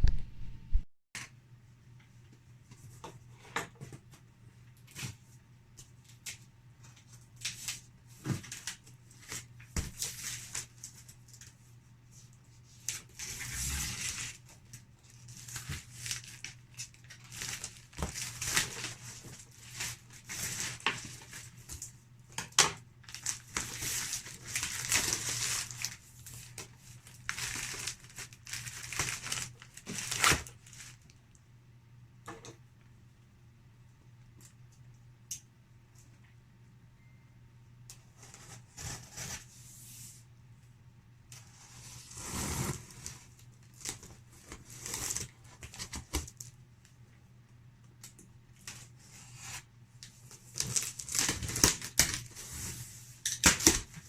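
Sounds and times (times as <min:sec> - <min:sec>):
packaging crinkling and tearing: 0:15.1 - 0:21.5, 0:22.4 - 0:31.1, 0:50.3 - 0:52.4.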